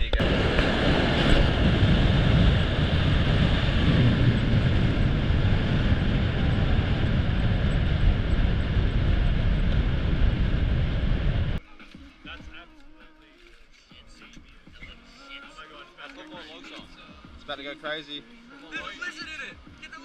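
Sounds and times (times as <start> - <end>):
vehicle engine and road noise: 0.0 - 11.6.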